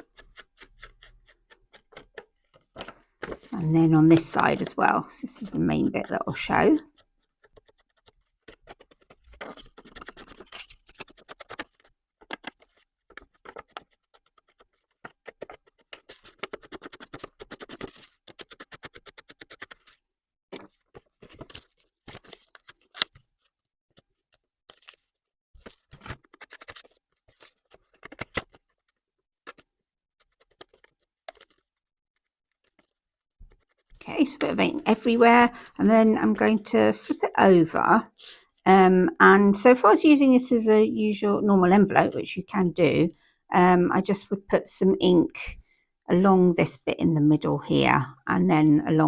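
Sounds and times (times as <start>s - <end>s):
ink applicator scratching on paper: 0.0s - 2.6s, 5.4s - 19.9s, 33.5s - 35.2s.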